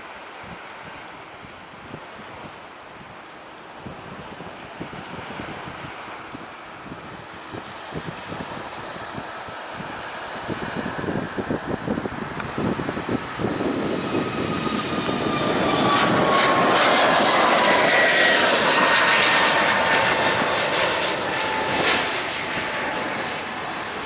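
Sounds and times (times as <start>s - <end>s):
jet airliner passing: 4.9s - 24.0s.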